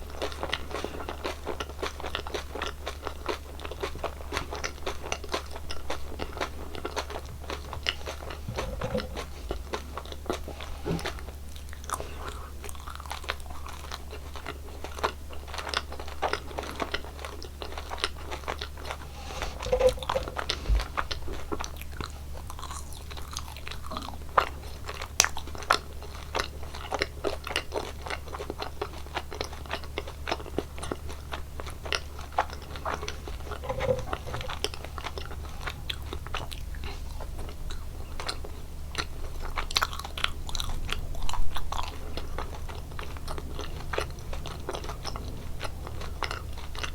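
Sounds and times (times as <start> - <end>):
chewing gummy candies: 0.0 - 46.9
low hum: 18.9 - 21.9.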